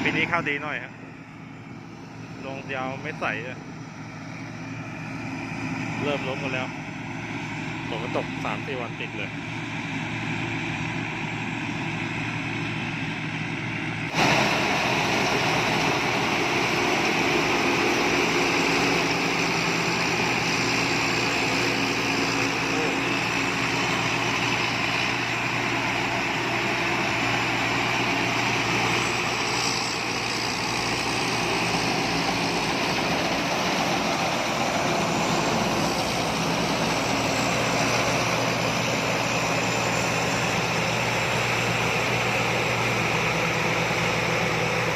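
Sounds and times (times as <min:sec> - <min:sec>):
combine harvester engine hum: 0:00.0 - 0:44.9
threshing machinery rushing: 0:14.1 - 0:44.9.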